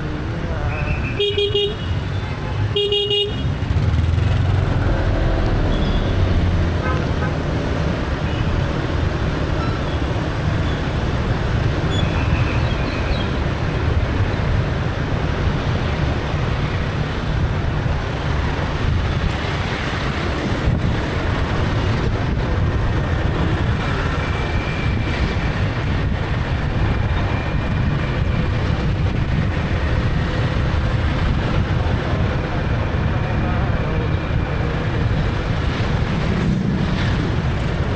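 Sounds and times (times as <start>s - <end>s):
traffic noise: 0.0s - 37.9s
wind buffeting microphone: 10.2s - 37.9s.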